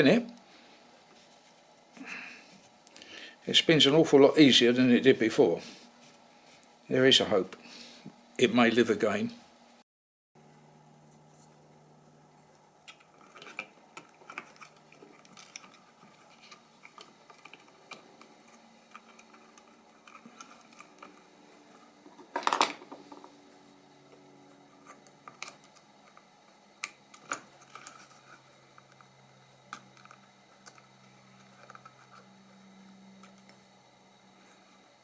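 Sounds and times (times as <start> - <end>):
faint steady hum: 0.0 - 9.8, 10.4 - 35.0
small parts clicking and tapping: 12.8 - 21.2.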